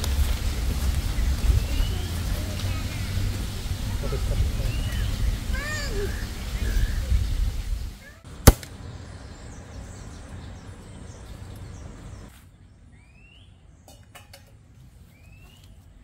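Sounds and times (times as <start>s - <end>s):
steady hiss: 0.0s - 8.8s.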